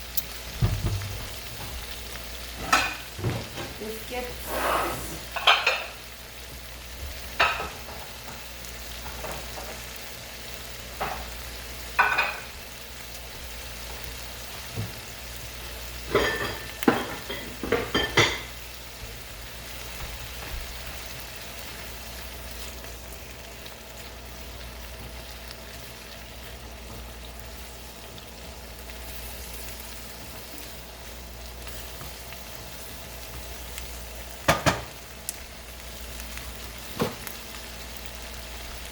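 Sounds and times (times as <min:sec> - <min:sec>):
shrimp sizzling in a pan: 0:00.0 - 0:38.9
utensil scraping a pan: 0:04.4 - 0:05.8.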